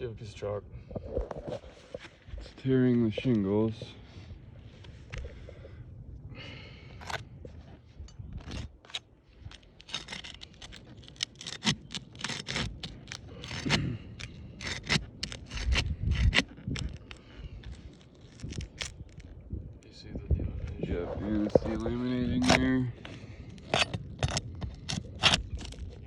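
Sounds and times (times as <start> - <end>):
shingles crackling and tearing: 8.4 - 19.4, 21.4 - 26.0.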